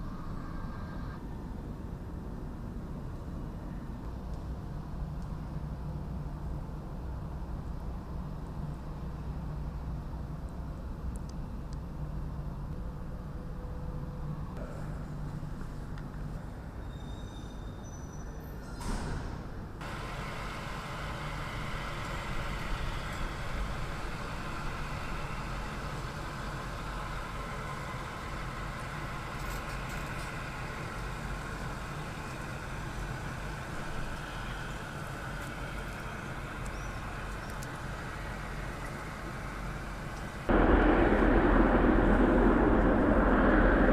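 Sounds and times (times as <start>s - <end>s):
steady engine noise: 19.8s - 43.9s.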